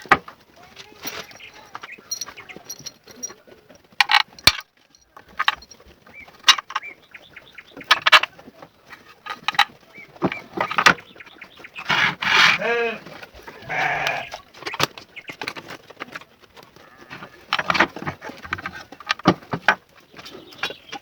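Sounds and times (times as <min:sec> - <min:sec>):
sharp knocks and clicks: 0:04.0 - 0:05.8, 0:06.4 - 0:06.9, 0:07.8 - 0:08.4, 0:17.2 - 0:21.0
farm animal bleating: 0:11.9 - 0:14.5, 0:16.7 - 0:17.4.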